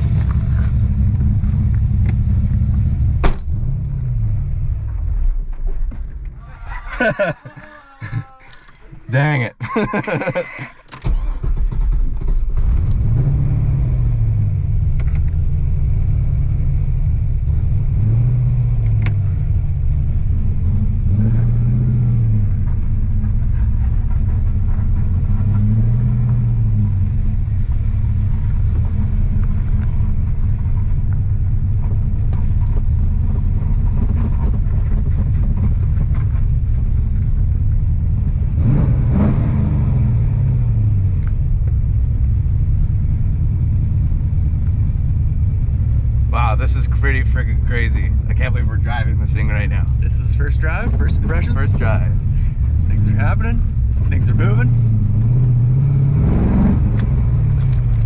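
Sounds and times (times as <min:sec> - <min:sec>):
engine deep rumble: 0:00.0 - 0:58.0.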